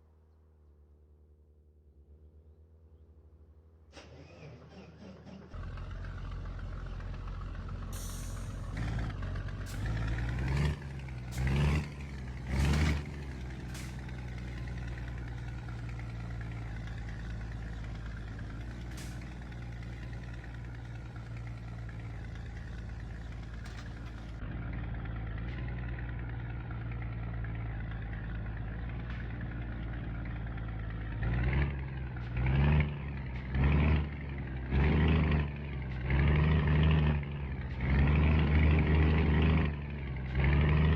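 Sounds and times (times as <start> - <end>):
truck diesel engine running: 3.9 - 40.9.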